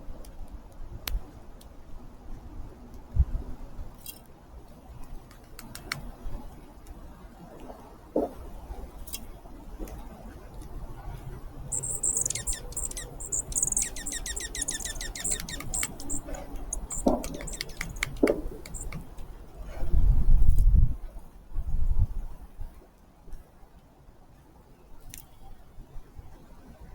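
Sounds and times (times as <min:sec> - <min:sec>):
low background rumble: 0:00.0 - 0:22.6
songbird trilling: 0:11.7 - 0:19.0.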